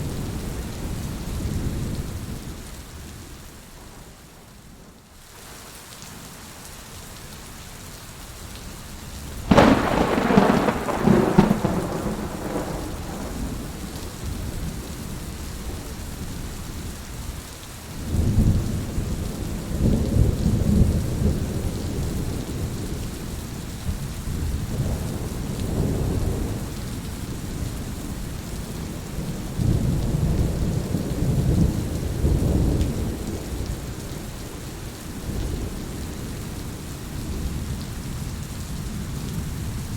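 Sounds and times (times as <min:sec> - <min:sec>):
heavy rain: 0:00.0 - 0:39.9
thunderclap: 0:09.5 - 0:14.7
low rolling thunder: 0:09.5 - 0:17.0, 0:18.0 - 0:39.9.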